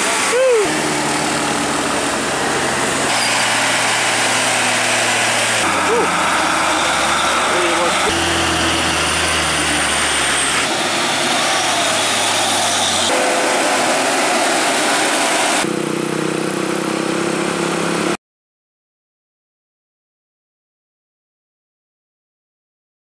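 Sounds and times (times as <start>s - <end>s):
diesel trucks climbing under load: 0.0s - 14.8s.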